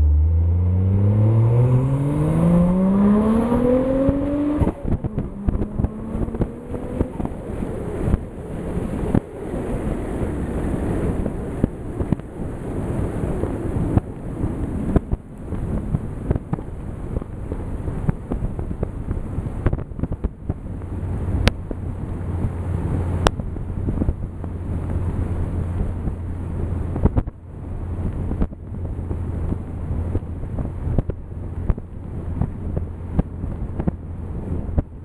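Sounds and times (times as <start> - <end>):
deep car exhaust note: 0.0 - 7.4.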